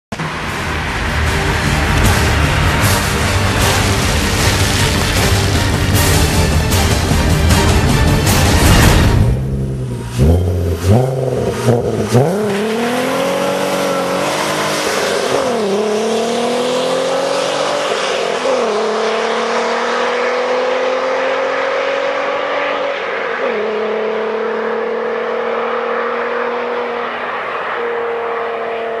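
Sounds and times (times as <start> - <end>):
car engine at full throttle: 0.1 - 29.0.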